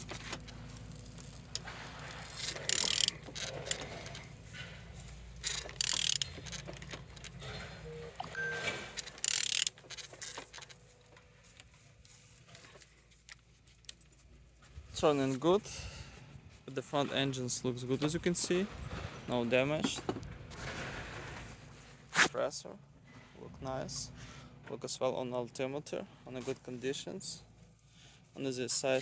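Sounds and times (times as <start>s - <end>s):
ratchet clicks: 0.0s - 4.3s, 5.4s - 7.4s, 8.9s - 10.8s
mechanical scraping: 0.0s - 10.7s.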